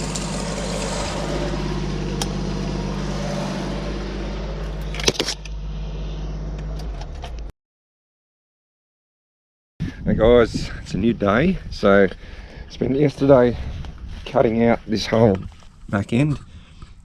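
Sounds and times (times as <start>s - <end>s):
motor humming: 0.0s - 7.3s.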